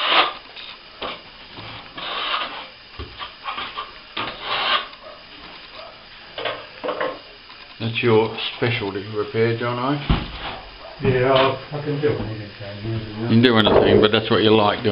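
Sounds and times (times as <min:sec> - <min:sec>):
hand tool scraping plaster: 0:00.0 - 0:00.4, 0:01.7 - 0:02.7, 0:03.5 - 0:04.9.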